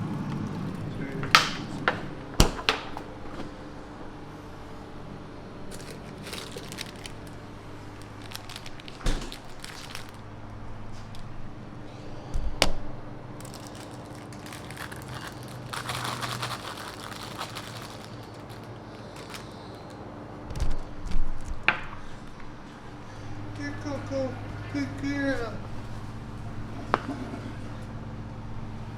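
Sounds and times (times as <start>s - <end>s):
crinkling and rustling handling: 0.0s - 3.6s, 5.6s - 11.2s, 13.3s - 20.0s
steady low hum: 0.0s - 28.9s.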